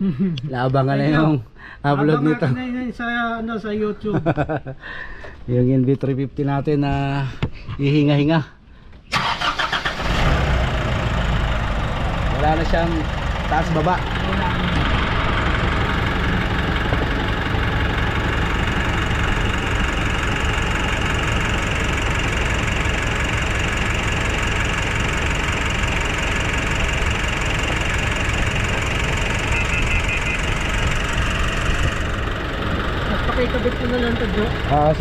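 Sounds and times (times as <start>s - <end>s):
diesel engine idling: 9.1s - 35.0s.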